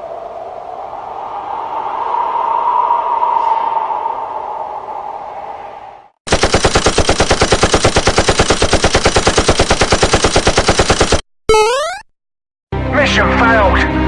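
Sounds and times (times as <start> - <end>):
automatic machine-gun fire: 6.3 - 11.2.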